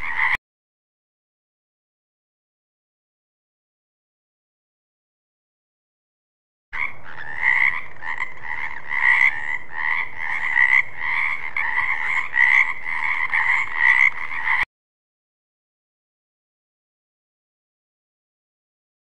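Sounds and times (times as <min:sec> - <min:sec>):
frog croaking: 0:00.0 - 0:00.4, 0:06.8 - 0:14.7.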